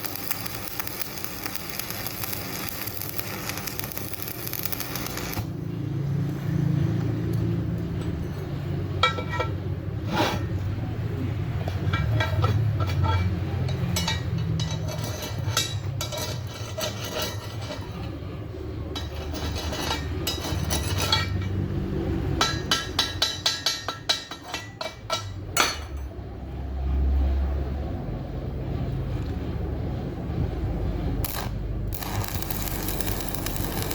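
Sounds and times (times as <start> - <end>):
metal clinking and tapping: 7.3 - 9.6, 11.6 - 17.4, 22.4 - 26.1.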